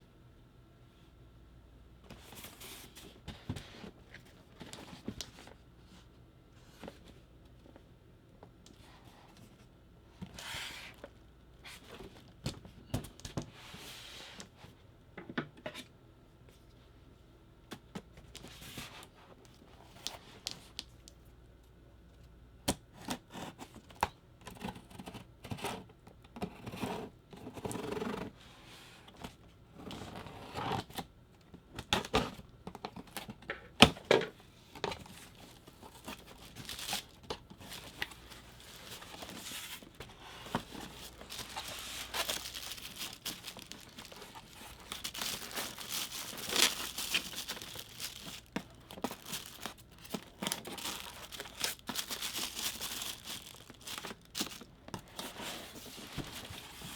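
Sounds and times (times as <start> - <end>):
packaging tearing and crinkling: 35.8 - 54.8.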